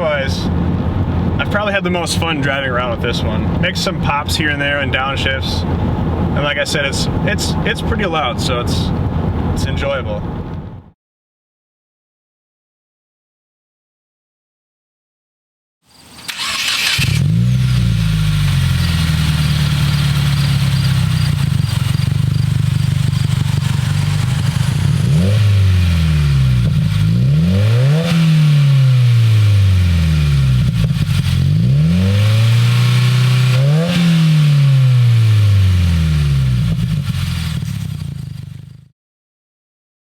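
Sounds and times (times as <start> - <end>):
car engine cranking: 16.0 - 38.8
car engine revving: 16.2 - 38.9.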